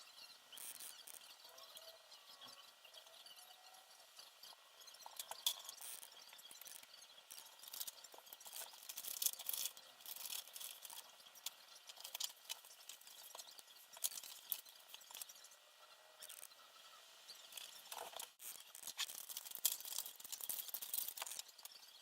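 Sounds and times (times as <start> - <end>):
light clicks taps and rustles: 4.4 - 15.5, 17.5 - 22.0.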